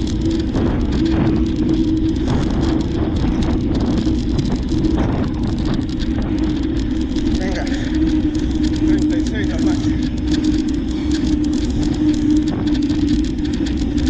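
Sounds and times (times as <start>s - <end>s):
bicycle tyre and road noise: 0.0s - 14.0s
faint crackle: 0.0s - 14.0s
steady hum: 0.0s - 14.0s
wind on microphone: 0.0s - 14.0s.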